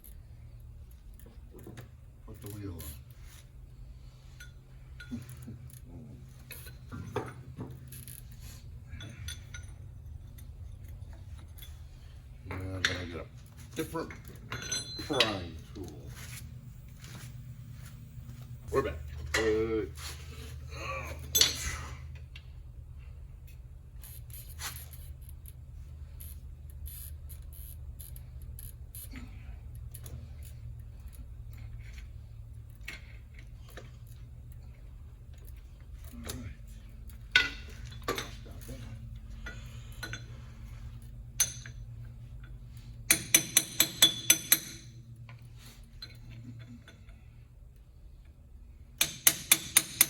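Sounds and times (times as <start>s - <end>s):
steady low hum: 0.0s - 50.0s
metallic clinks of tools: 4.3s - 13.2s, 13.8s - 16.0s, 21.3s - 21.8s, 43.1s - 45.0s.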